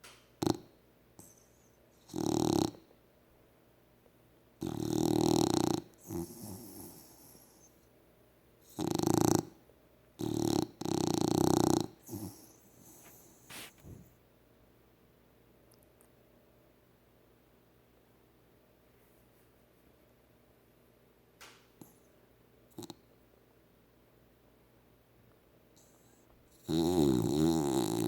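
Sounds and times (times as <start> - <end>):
dog snoring: 0.4 - 2.9, 4.6 - 7.8, 8.6 - 9.6, 10.2 - 14.1, 22.7 - 23.0, 25.8 - 28.0
dog breathing: 11.5 - 14.1.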